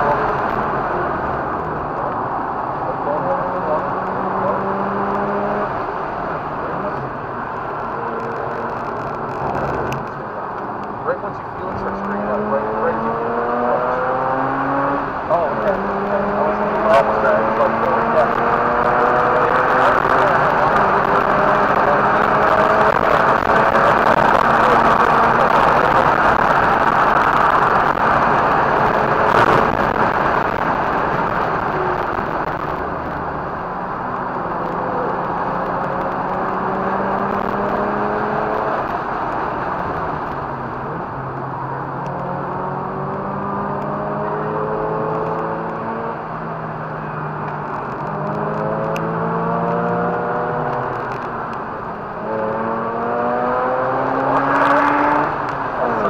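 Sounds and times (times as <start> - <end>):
rotary engine revving: 2.9 - 7.0, 11.1 - 41.1, 41.9 - 56.0
wind rush: 18.4 - 41.3.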